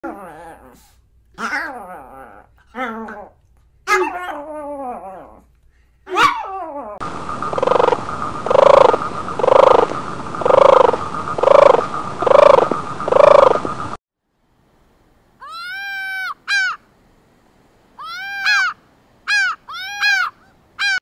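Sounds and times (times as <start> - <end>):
small dog yipping and whining: 3.9 - 5.4, 6.1 - 7.0, 18.0 - 21.0
tortoise low pulsing calls: 7.0 - 14.0
steady hiss: 7.0 - 15.4.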